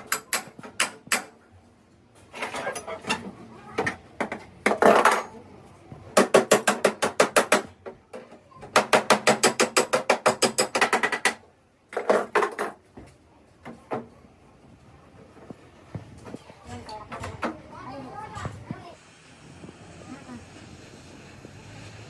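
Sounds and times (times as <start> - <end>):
rapid hammer strikes on metal: 0.0 - 1.4, 6.2 - 7.8, 8.7 - 11.4.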